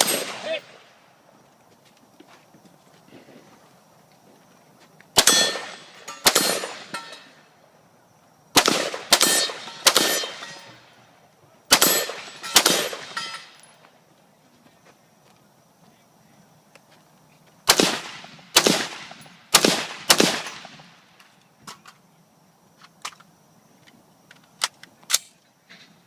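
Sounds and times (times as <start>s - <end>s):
gunshots: 0.0s - 0.9s, 5.2s - 7.4s, 8.5s - 10.9s, 11.7s - 13.6s, 17.6s - 21.0s
steel target ringing: 5.2s - 7.4s.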